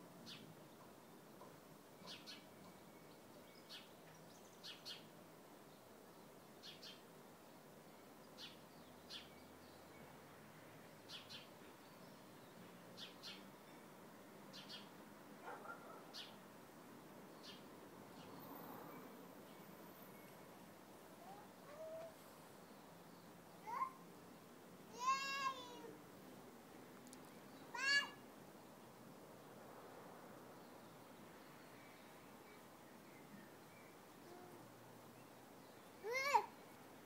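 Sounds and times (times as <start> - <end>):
faint bird chirps: 0.2 - 5.1, 21.2 - 24.0, 30.9 - 36.9.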